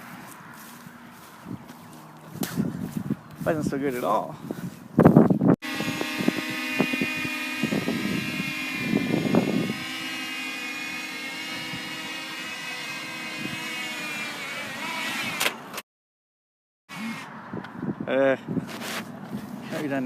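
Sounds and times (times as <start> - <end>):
drone propellers whining: 5.6 - 15.8.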